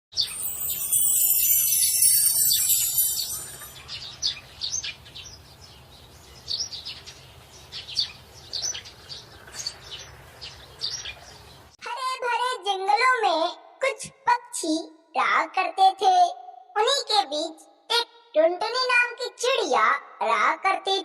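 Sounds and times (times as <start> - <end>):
birds chirping: 0.2 - 11.7
child singing: 11.8 - 21.0.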